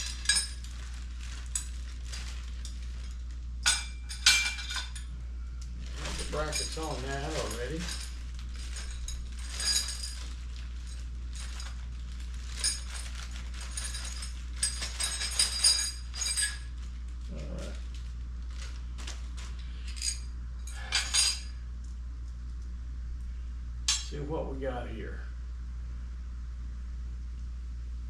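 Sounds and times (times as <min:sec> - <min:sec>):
metal bolts clinking and rattling: 0:00.0 - 0:05.1, 0:06.0 - 0:11.8, 0:12.5 - 0:16.8, 0:19.8 - 0:21.6
steady low hum: 0:00.0 - 0:28.0.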